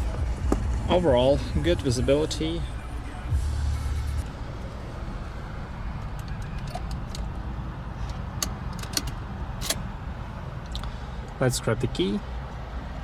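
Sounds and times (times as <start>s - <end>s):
car engine idling: 1.1s - 10.7s.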